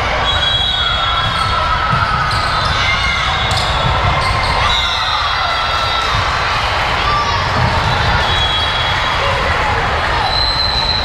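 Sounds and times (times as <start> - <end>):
sneakers squeaking on floor: 0.2 - 5.2.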